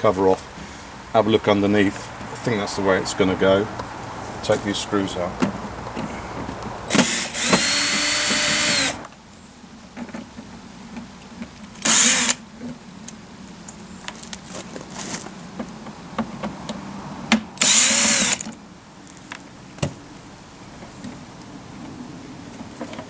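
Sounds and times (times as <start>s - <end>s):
cordless drill unscrewing: 6.9s - 9.1s, 11.8s - 12.4s, 17.6s - 18.6s.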